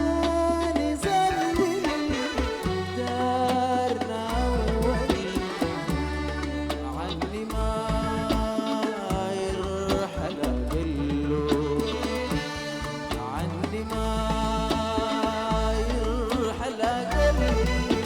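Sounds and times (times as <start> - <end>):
band playing instrumental music: 0.0 - 7.6, 11.2 - 18.0
deep bass line: 0.0 - 18.0
hand percussion strikes: 0.0 - 18.0.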